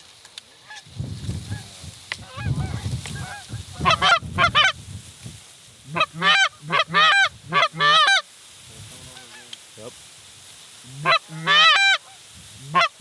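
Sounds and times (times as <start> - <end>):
goose honking: 1.5 - 4.8, 5.9 - 8.3, 9.0 - 9.6, 10.9 - 13.0.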